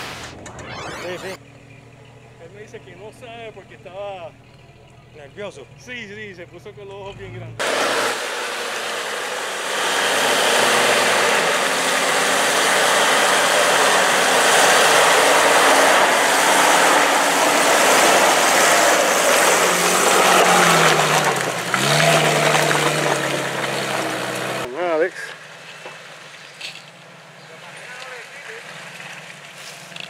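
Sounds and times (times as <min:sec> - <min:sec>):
engine running loudly: 0:00.0 - 0:01.4, 0:07.6 - 0:24.7.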